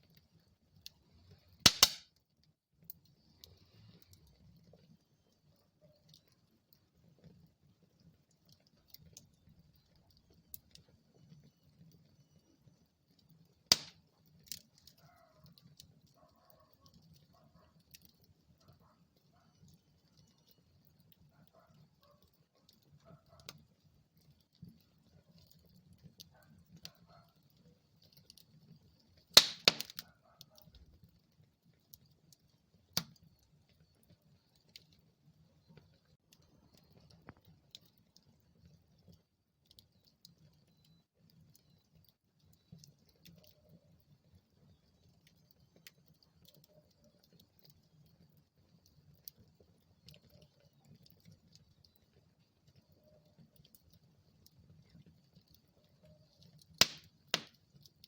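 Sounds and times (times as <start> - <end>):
wood fire crackling: 0.0 - 58.0
sharp loud fire pop: 1.7 - 2.0, 13.7 - 13.9, 29.4 - 29.9, 56.8 - 57.5.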